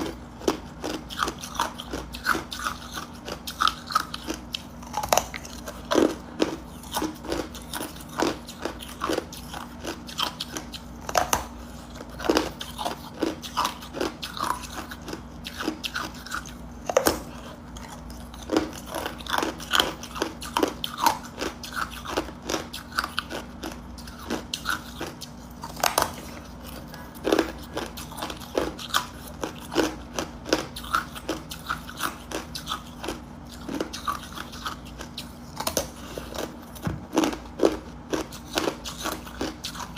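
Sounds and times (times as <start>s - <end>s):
person crunching ice cubes: 0.0s - 39.9s.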